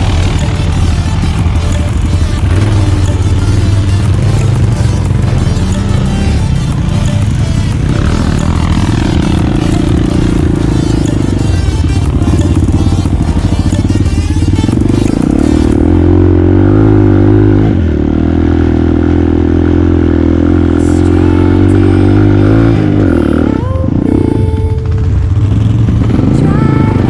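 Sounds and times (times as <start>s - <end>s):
noisy rush: 0.0s - 18.0s
atv engine revving: 0.0s - 27.0s.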